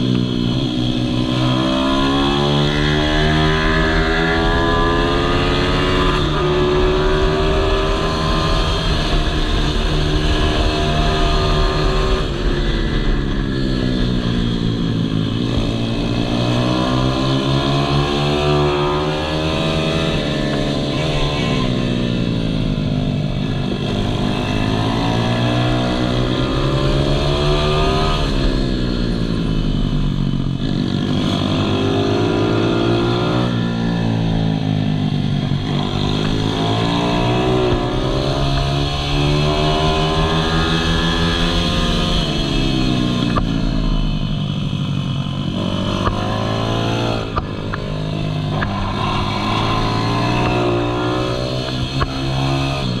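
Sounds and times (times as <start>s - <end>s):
motorbike engine revving: 0.0s - 53.0s.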